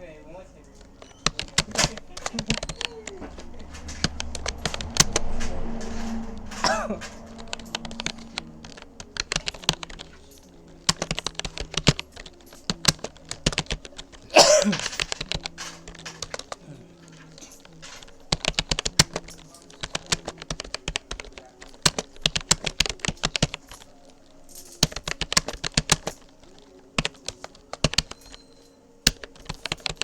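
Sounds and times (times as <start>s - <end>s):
keyboard key clicks: 0.8s - 14.2s, 14.8s - 16.6s, 17.2s - 24.0s, 24.7s - 28.4s, 29.0s - 30.0s.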